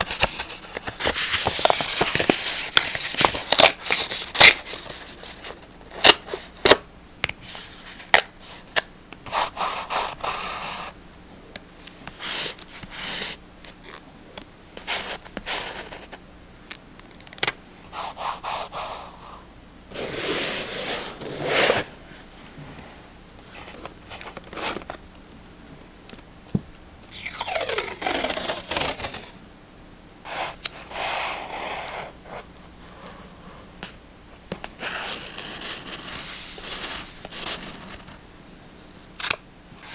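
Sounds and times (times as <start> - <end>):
paper rubbing and rustling: 0.0 - 5.6, 19.9 - 21.9, 34.8 - 38.2.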